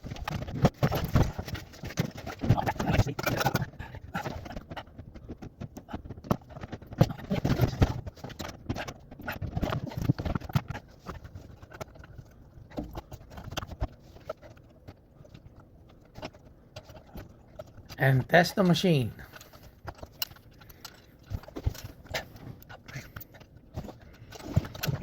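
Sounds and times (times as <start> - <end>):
hand tools and metal fittings clattering: 16.1 - 25.0.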